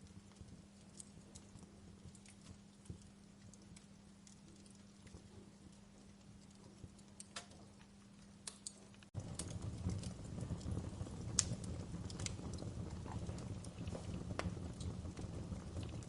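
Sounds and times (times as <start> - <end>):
low rumble of flames: 0.0 - 16.0
wood fire crackling: 0.0 - 16.0.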